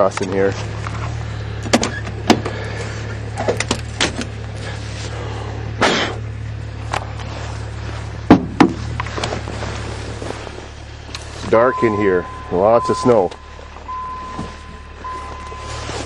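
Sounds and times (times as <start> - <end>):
diesel engine idling: 0.0 - 16.0
footsteps crunching through snow: 7.0 - 16.0.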